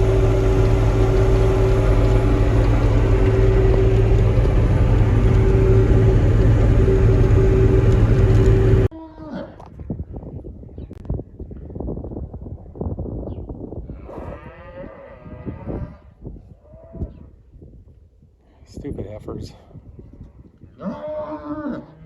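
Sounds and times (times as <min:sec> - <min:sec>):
tractor engine running under load: 0:00.0 - 0:08.9.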